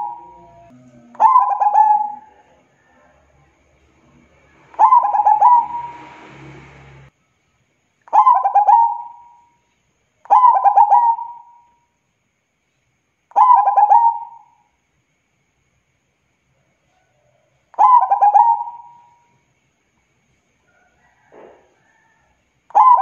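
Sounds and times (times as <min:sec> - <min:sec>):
dove cooing: 0:00.0 - 0:02.6, 0:04.7 - 0:06.0, 0:08.1 - 0:09.4, 0:10.3 - 0:11.5, 0:13.4 - 0:14.5, 0:17.8 - 0:19.1, 0:22.7 - 0:23.0.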